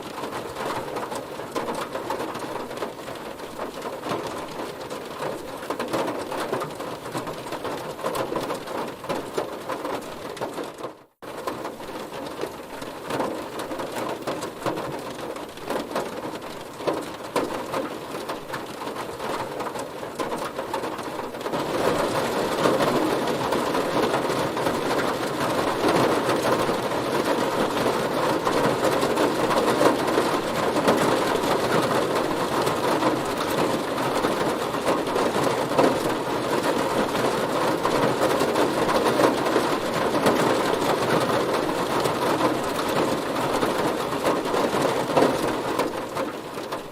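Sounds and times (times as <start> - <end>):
heavy rain on car body: 0.0 - 46.9.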